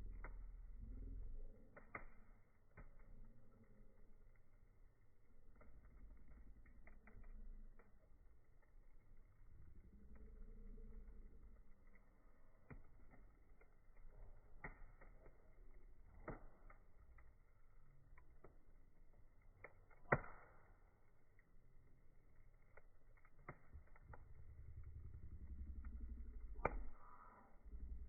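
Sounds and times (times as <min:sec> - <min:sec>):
low rumble: 0:00.0 - 0:01.7, 0:05.4 - 0:14.5, 0:23.8 - 0:28.0
wood fire crackling and popping: 0:00.0 - 0:28.0.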